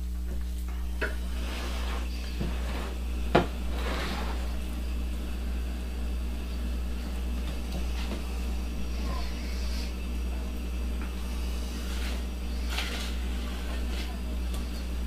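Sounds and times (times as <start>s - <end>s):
steady low hum: 0.0s - 15.0s
utensil scraping pan: 1.0s - 4.6s, 11.2s - 14.8s.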